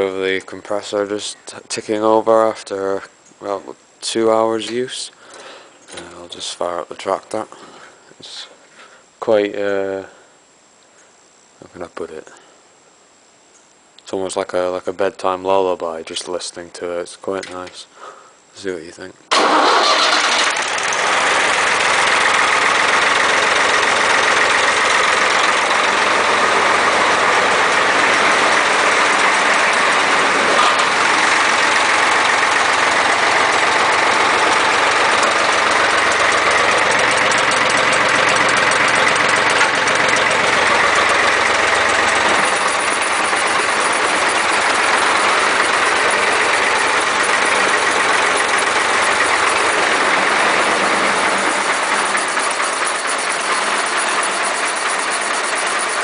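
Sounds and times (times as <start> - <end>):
tractor engine chugging: 19.3 - 56.0.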